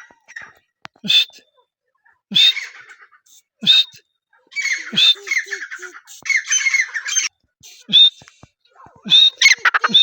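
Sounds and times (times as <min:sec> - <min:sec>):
francolin harsh squawking calls: 0:09.4 - 0:10.0.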